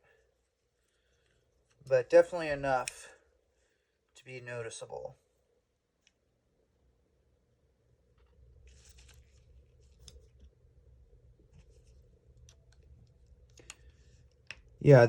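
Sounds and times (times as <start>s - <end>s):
faint clicks and rustling of parts: 0.1s - 3.2s, 5.9s - 6.3s, 8.0s - 14.8s.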